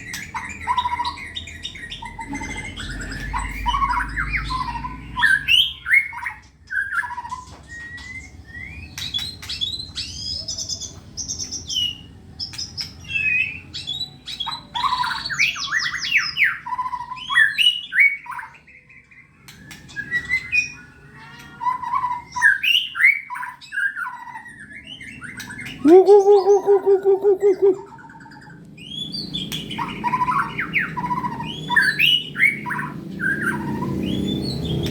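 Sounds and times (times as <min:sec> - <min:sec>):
bird singing whistled phrases: 0:13.0 - 0:28.2
bird pulsing trill: 0:25.8 - 0:28.6.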